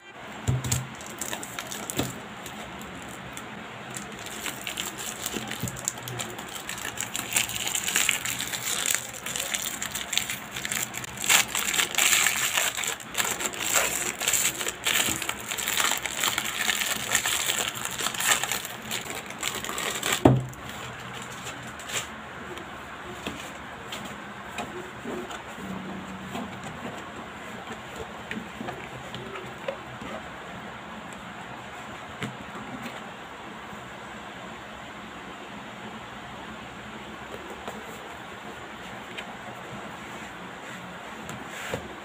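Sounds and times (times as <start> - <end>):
plastic wrap crinkling: 0.8 - 22.1.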